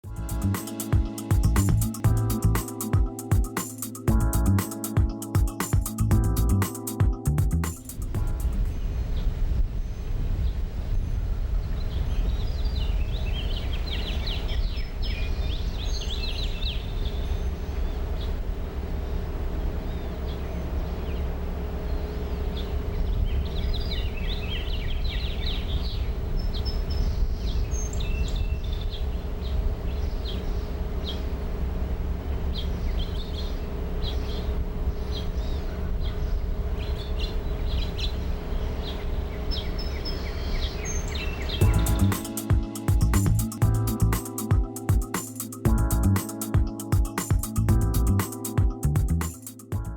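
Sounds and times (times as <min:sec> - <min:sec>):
birds chirping: 0:00.2 - 0:49.9
faint steady hum: 0:07.0 - 0:49.9
low rumble: 0:07.3 - 0:13.5.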